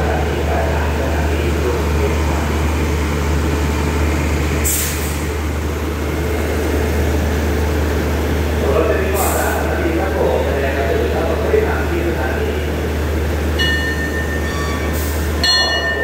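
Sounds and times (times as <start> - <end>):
diesel train idling hum: 0.0 - 16.0
sharp hiss of air: 4.7 - 5.2.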